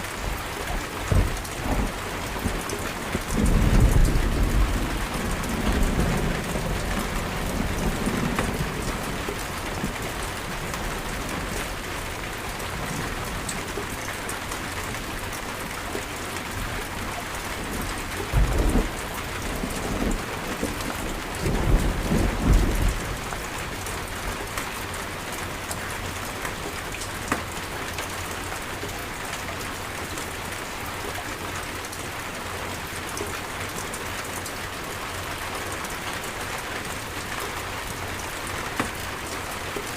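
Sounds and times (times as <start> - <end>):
heavy rain falling: 0.0 - 39.9
thunder rumbling: 0.2 - 11.8, 17.5 - 23.8.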